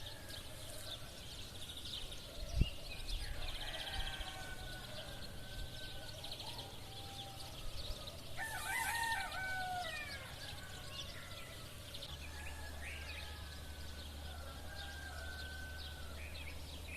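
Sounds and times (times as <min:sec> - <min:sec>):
small birds chirping: 0:00.0 - 0:16.9
rooster crowing: 0:03.2 - 0:16.5.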